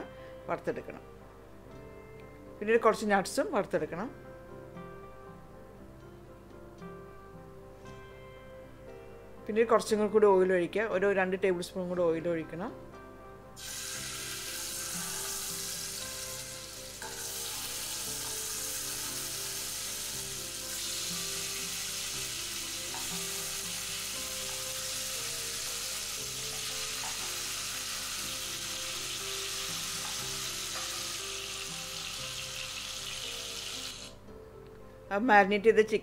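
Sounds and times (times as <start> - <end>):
chicken sizzling in hot oil: 13.6 - 34.2.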